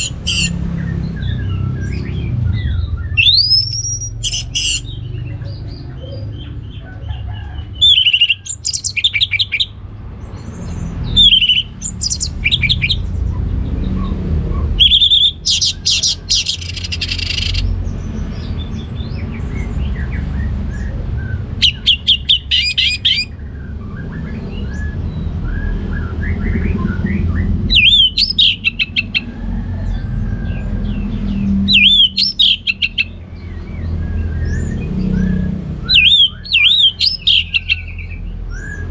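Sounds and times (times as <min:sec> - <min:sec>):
softer bird twittering: 0:00.0 - 0:06.6, 0:07.6 - 0:09.8, 0:10.5 - 0:18.5
thrush singing: 0:00.0 - 0:09.8, 0:11.0 - 0:17.8.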